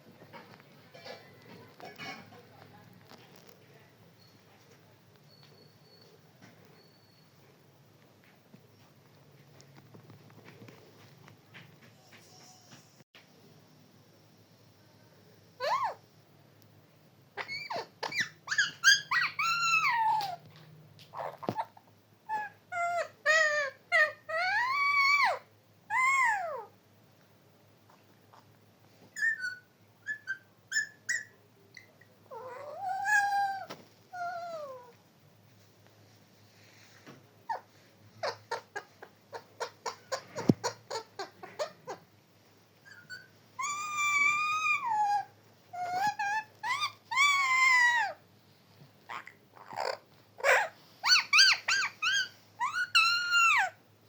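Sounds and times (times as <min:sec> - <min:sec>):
parrot calling: 0:17.4 - 0:20.4, 0:22.3 - 0:26.7, 0:29.2 - 0:34.9, 0:38.2 - 0:42.1, 0:42.8 - 0:48.2, 0:49.1 - 0:53.8.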